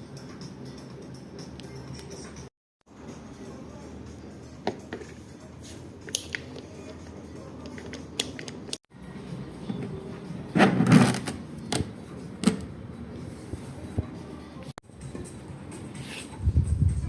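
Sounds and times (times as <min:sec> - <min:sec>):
tools and parts clicking: 0:07.6 - 0:08.8.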